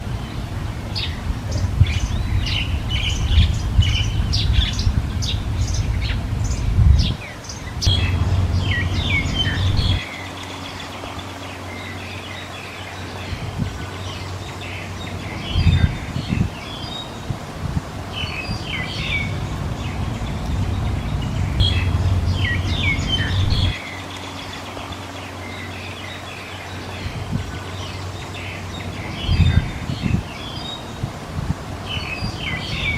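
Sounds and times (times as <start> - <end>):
birds chirping: 0.0 - 32.9
loud low rumble: 0.1 - 10.2, 13.3 - 23.8.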